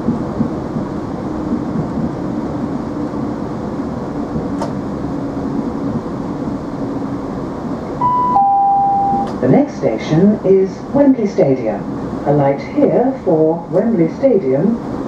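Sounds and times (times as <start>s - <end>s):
train wheels rumbling on rail: 0.0s - 8.0s, 8.9s - 15.0s
faint steady hum: 7.8s - 15.0s.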